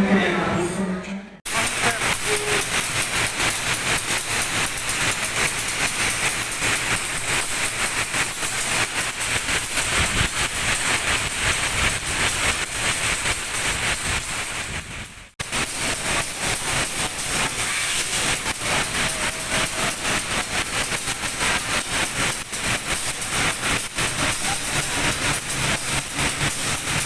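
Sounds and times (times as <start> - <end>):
passenger train on rails: 0.0 - 27.0.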